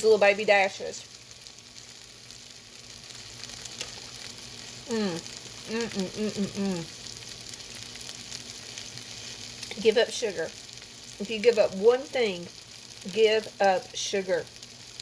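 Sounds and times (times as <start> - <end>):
woman's voice: 0.0 - 1.0, 4.9 - 6.9, 9.7 - 10.5, 11.2 - 12.5, 13.1 - 14.5
food sizzling with crackles: 0.0 - 15.0.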